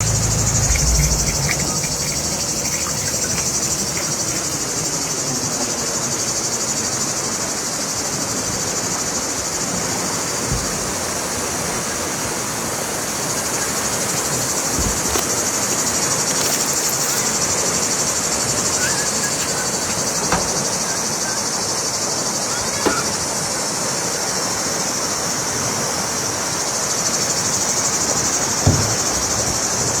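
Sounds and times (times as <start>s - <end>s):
high-pitched insect chorus: 0.0s - 10.3s, 13.2s - 30.0s
soft knocks: 19.4s - 20.8s.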